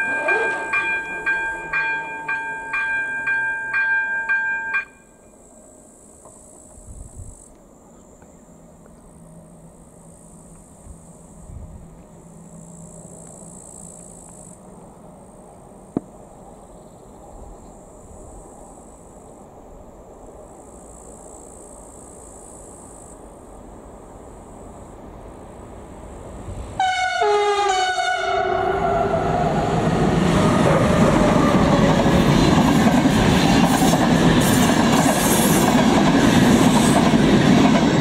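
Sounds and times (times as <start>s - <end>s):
approaching train rumble: 0.0s - 38.0s
insects trilling: 4.9s - 26.6s.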